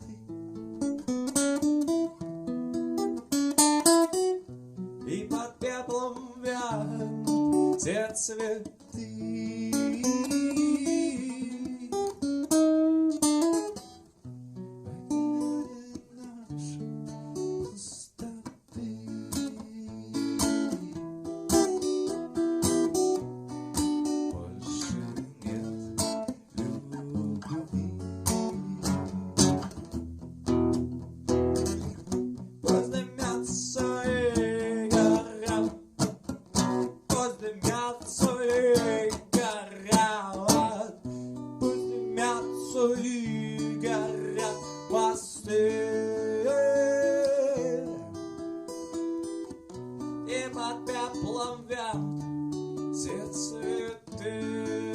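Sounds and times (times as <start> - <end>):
acoustic guitar playing: 0.0 - 54.9.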